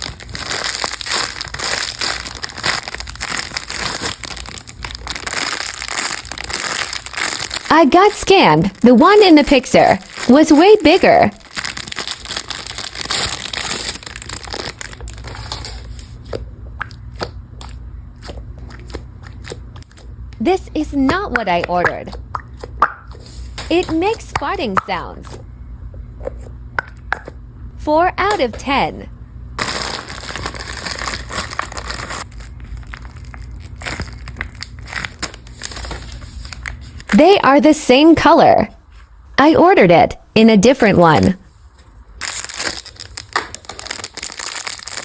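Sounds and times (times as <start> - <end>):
plastic packaging crinkling: 0.0 - 16.4, 21.3 - 25.4, 29.6 - 37.2, 41.2 - 45.0.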